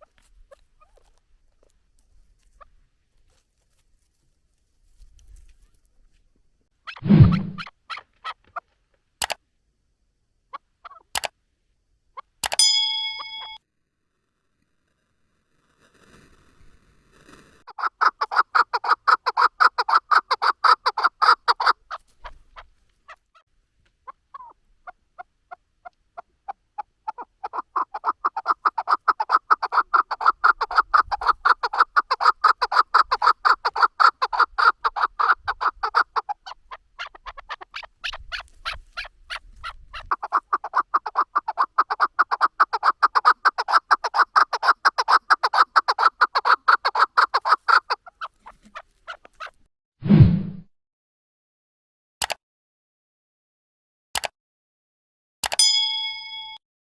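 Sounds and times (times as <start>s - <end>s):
partridge calling: 17.7s - 23.4s, 24.0s - 25.6s, 26.2s - 49.6s.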